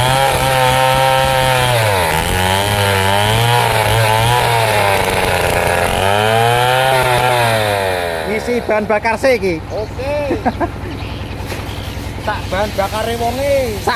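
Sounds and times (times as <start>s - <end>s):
chainsaw cutting through log: 0.0s - 9.2s.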